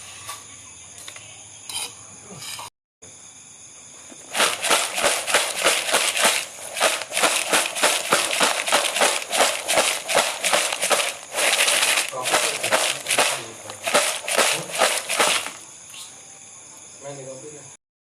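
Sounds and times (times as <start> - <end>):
snack pieces rattling in container: 4.3 - 15.6.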